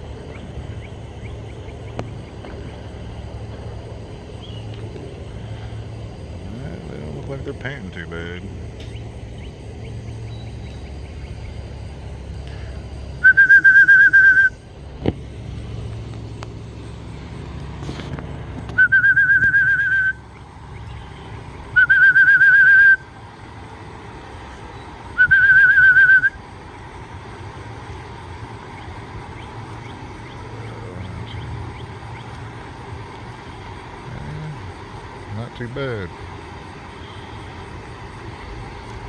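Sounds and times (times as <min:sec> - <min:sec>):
trilling whistle blasts: 0:13.2 - 0:14.6, 0:18.7 - 0:23.2, 0:24.7 - 0:26.6.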